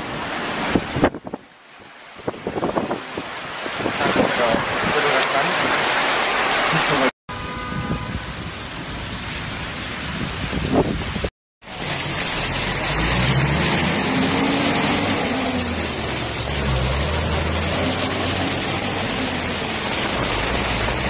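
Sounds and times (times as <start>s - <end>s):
car passing through water: 0.0s - 1.1s, 2.1s - 7.8s, 11.6s - 21.0s
heavy rain pouring: 0.0s - 7.1s, 8.1s - 21.0s.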